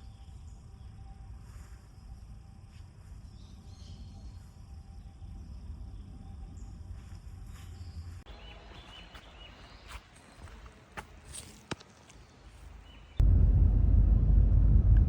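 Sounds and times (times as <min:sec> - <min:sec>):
low rumble: 0:13.2 - 0:15.0.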